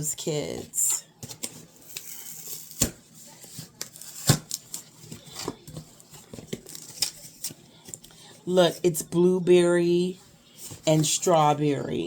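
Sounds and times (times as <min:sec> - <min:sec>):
packaging rustling: 0:01.2 - 0:08.1.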